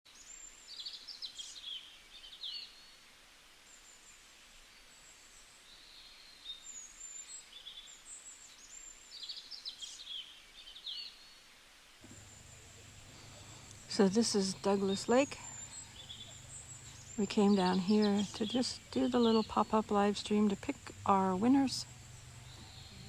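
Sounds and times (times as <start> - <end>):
faint outdoor background noise: 0.1 - 23.0
songbird chirping: 12.0 - 23.0.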